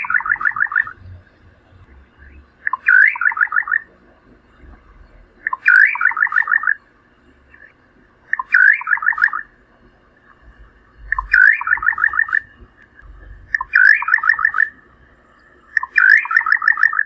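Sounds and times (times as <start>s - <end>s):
nightjar singing: 0.0s - 1.2s, 1.8s - 3.9s, 4.9s - 6.9s, 8.3s - 9.6s, 11.0s - 14.8s, 15.7s - 17.0s.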